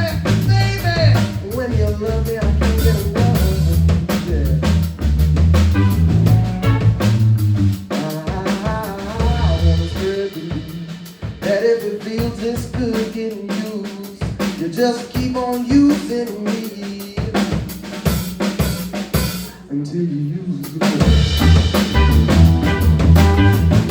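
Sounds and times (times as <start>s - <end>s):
bass line: 0.0s - 11.6s, 18.4s - 23.9s
drum kit: 0.0s - 19.7s, 20.5s - 23.9s
lead guitar line bending: 5.4s - 7.8s, 21.0s - 23.9s.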